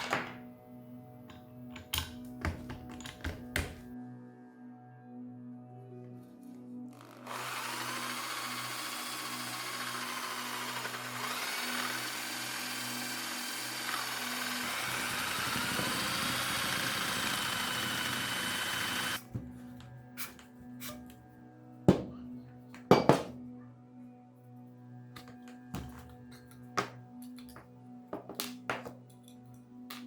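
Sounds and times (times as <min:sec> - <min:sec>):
electric drill whining: 0:06.9 - 0:19.2.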